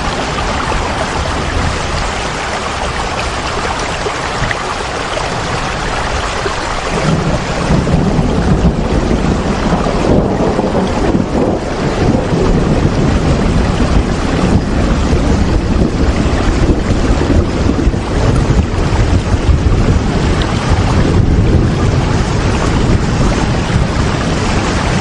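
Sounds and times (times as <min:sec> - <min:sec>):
heavy rain: 0:00.0 - 0:25.0.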